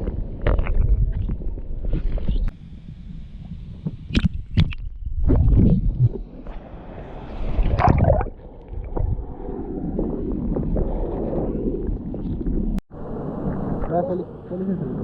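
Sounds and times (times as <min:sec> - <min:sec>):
water sloshing and gurgling: 0:04.1 - 0:12.8.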